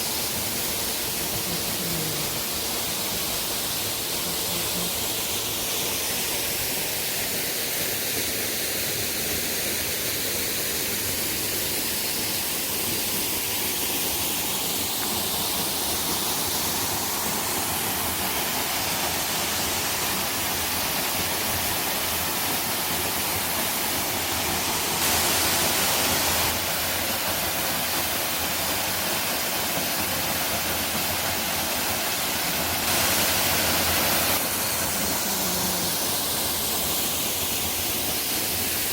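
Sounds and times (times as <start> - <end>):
waterfall rushing: 10.9 - 38.9.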